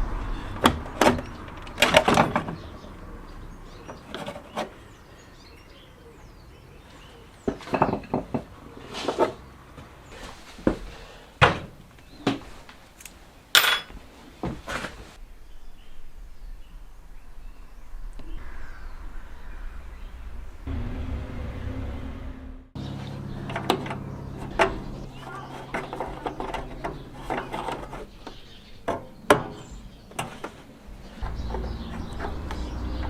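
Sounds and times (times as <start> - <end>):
tools and metal parts clinking: 13.5 - 14.0, 23.4 - 28.1.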